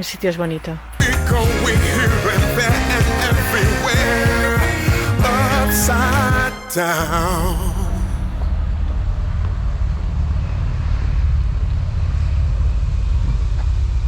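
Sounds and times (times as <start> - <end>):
background music: 0.9 - 8.8
steady low rumble: 7.0 - 14.0.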